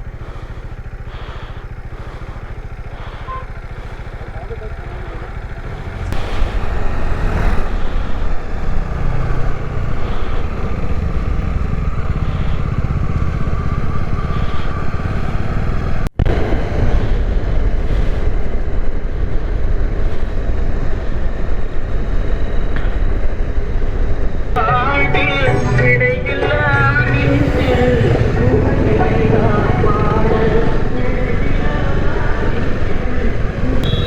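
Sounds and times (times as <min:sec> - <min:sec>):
motorcycle engine running: 0:00.0 - 0:34.0
wind noise: 0:05.9 - 0:24.6.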